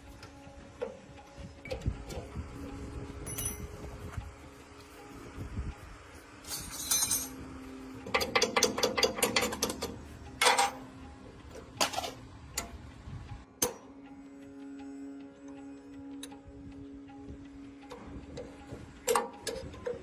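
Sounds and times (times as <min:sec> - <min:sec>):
faint background music: 0:00.0 - 0:20.0
metallic clinks: 0:03.2 - 0:03.8, 0:06.4 - 0:07.4
tool scraping metal: 0:06.4 - 0:07.4
ratchet clicking: 0:08.0 - 0:10.8, 0:17.8 - 0:20.0.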